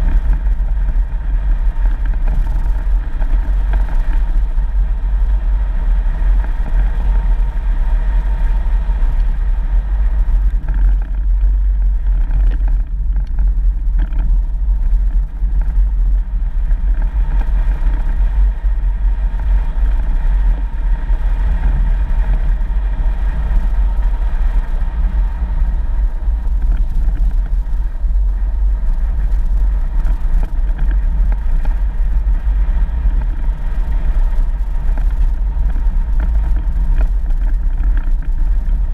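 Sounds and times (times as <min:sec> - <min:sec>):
vehicle engine and road rumble: 0:00.0 - 0:38.9.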